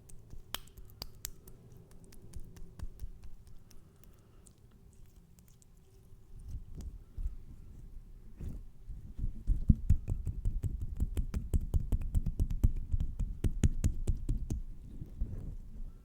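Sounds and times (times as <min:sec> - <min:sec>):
fast close-up taps: 0:09.6 - 0:14.6.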